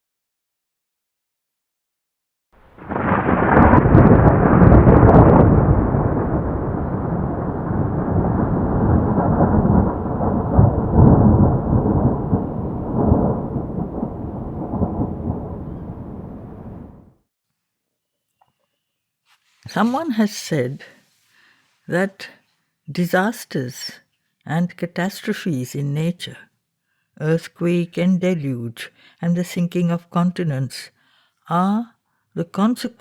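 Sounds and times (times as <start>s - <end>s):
rolling thunder rumble: 2.7s - 17.2s
thunder clap: 2.7s - 17.2s.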